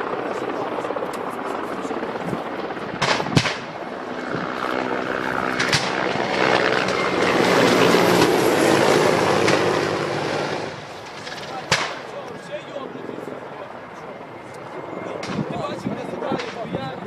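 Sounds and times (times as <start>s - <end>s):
helicopter engine and rotor drone: 0.0s - 17.0s
sharp cracks: 3.0s - 3.8s, 5.5s - 6.2s, 10.9s - 12.2s.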